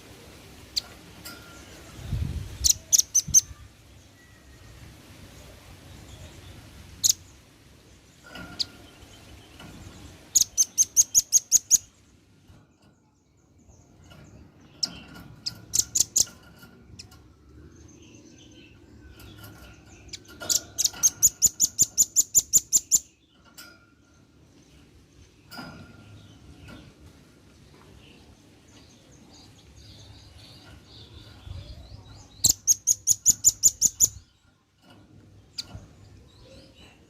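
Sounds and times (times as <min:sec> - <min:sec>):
bird chattering trills: 0:02.4 - 0:03.7, 0:10.3 - 0:11.9, 0:14.7 - 0:17.1, 0:18.0 - 0:23.2, 0:29.4 - 0:34.4.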